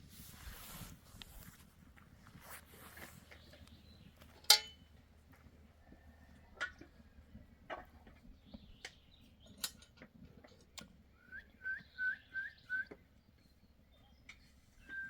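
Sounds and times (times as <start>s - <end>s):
short whistled notes: 14.8s - 15.0s.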